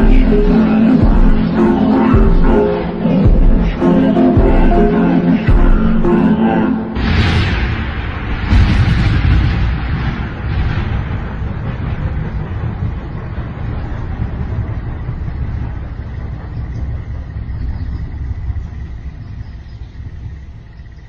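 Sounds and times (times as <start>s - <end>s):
faint steady high tone: 0.0s - 7.0s
reverberant train rumble: 0.0s - 21.0s.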